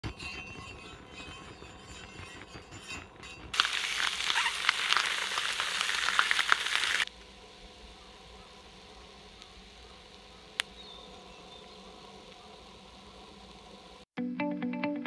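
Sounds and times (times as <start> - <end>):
fish sizzling on a griddle: 3.6 - 14.1.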